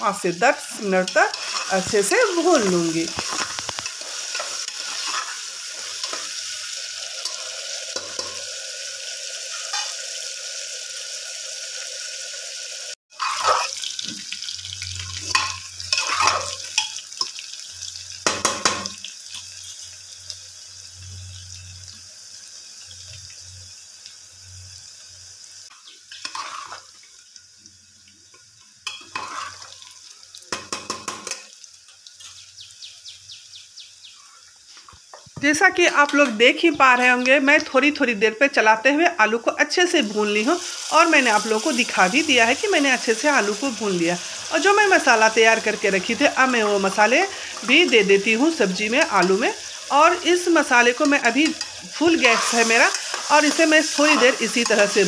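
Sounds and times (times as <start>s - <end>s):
potatoes sizzling in oil: 0.0s - 55.0s
spoon scraping a metal pot: 1.0s - 2.2s, 3.1s - 6.3s, 13.1s - 13.8s, 15.2s - 17.0s, 26.1s - 26.9s, 28.8s - 29.8s, 51.0s - 55.0s.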